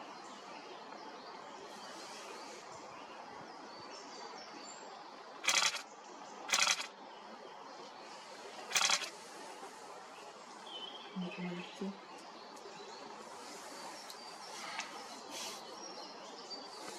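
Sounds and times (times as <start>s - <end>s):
camera shutter clicks: 5.4s - 5.8s, 6.5s - 6.9s, 8.7s - 9.1s
faint bird chirps: 7.8s - 9.3s.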